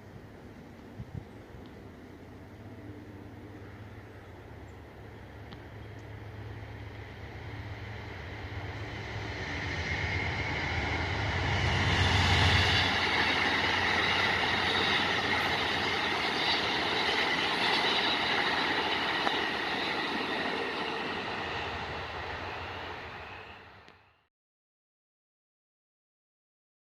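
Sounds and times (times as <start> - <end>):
diesel locomotive engine rumble: 0.0 - 24.2
rail cars rolling by: 0.0 - 24.2
high wheel whine: 6.2 - 24.0.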